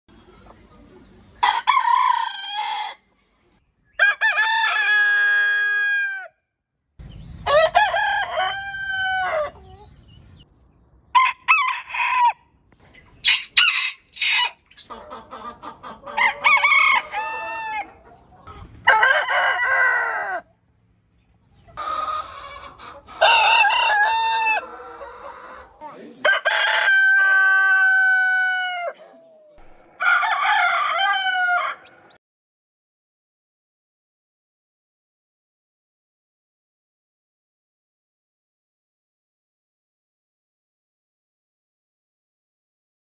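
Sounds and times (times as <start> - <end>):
roosters crowing: 1.4 - 3.2, 4.0 - 6.4, 7.4 - 9.9, 11.1 - 12.6, 13.2 - 20.6, 21.7 - 32.2.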